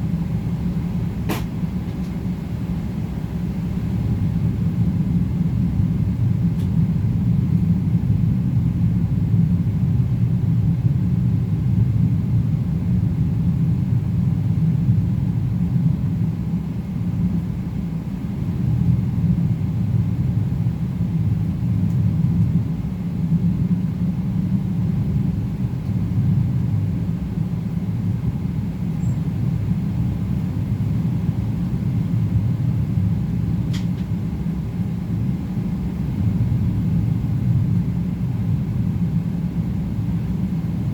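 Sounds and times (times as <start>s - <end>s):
airplane cabin rumble: 0.0s - 40.9s
faint click: 33.7s - 34.1s.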